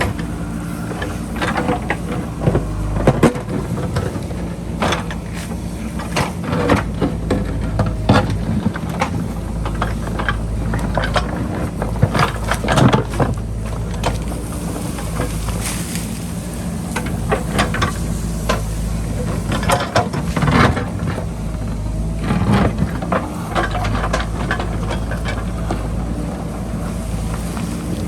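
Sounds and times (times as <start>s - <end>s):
diesel engine running under load: 0.0s - 28.0s.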